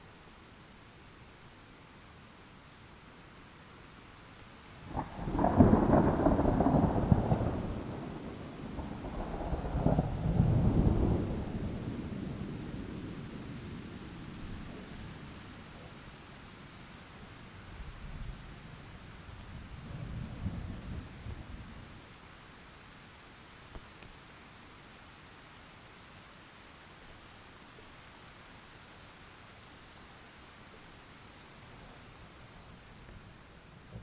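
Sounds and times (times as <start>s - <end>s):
steady rain falling: 0.0s - 34.0s
thunder rumble: 4.9s - 13.1s.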